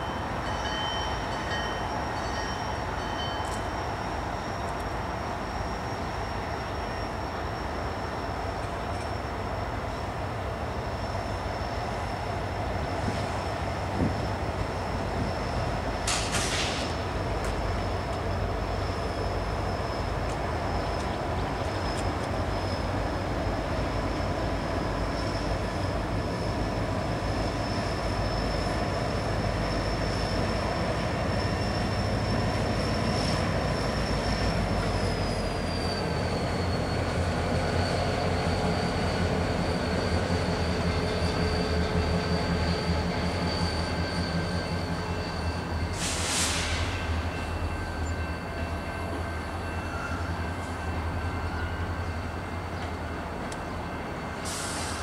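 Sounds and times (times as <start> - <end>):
diesel locomotives rumbling: 0.0 - 55.0
train coaches rolling on rails: 0.0 - 55.0
high-pitched squeal: 10.7 - 52.9.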